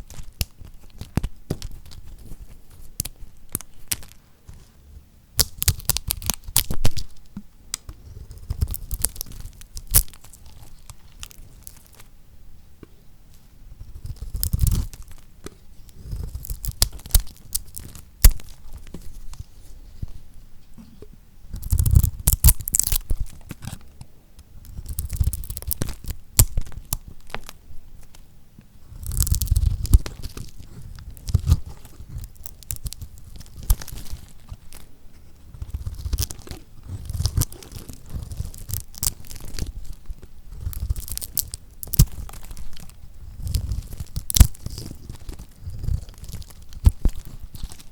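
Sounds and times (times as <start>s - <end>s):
knife cutting crunchy soap: 15.8s - 18.8s, 28.9s - 47.9s.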